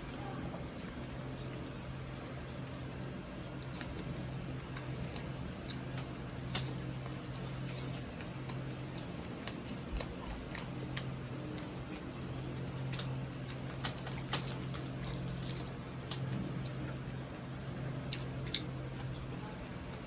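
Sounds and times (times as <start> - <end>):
chewing crispy food: 0.0 - 20.0
steady low hum: 0.0 - 20.0.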